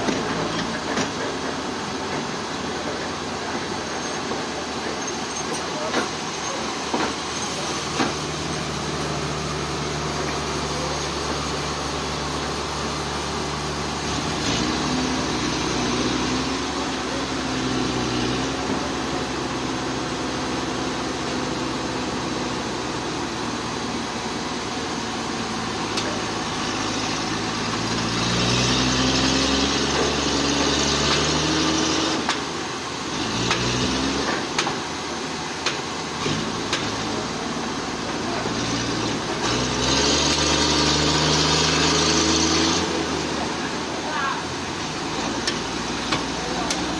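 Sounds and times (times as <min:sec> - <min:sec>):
loud hissing noise: 0:00.0 - 0:46.9
sawmill engine running: 0:00.0 - 0:46.9.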